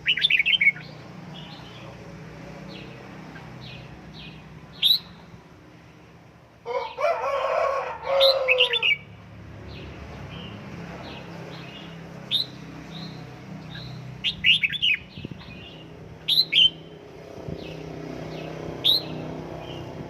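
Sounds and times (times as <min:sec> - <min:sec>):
bulbul chirping: 0:04.8 - 0:05.2.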